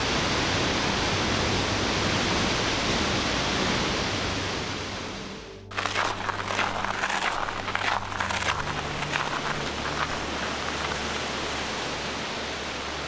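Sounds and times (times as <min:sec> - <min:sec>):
crackling and rustling: 0:05.7 - 0:13.0.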